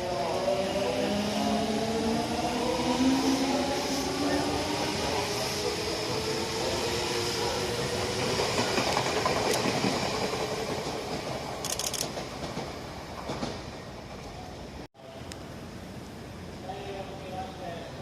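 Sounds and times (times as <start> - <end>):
train wheels rumbling on rails: 0.3 - 14.5.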